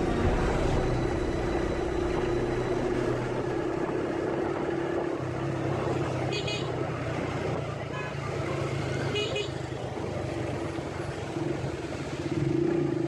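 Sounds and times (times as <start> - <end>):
road noise: 0.0 - 9.2.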